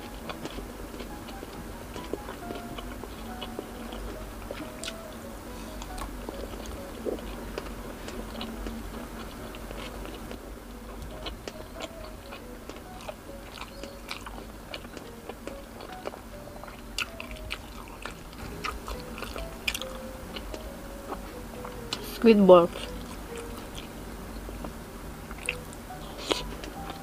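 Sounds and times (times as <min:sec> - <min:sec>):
person chewing food: 0:00.0 - 0:22.1, 0:22.7 - 0:27.0.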